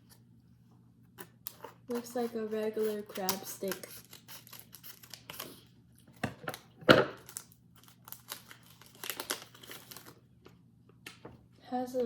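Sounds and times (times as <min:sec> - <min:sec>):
plastic wrapper crinkling and tearing: 0:03.1 - 0:10.3.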